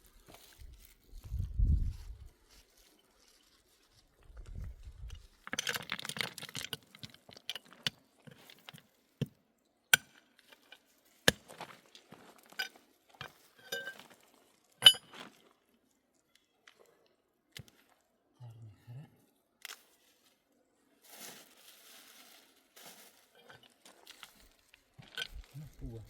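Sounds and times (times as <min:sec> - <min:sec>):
glassware clinking and knocking: 0:13.6 - 0:14.0.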